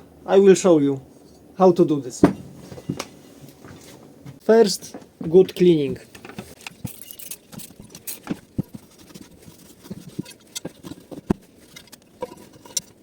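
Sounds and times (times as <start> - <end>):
engine parts tapping and scraping: 6.1 - 13.0.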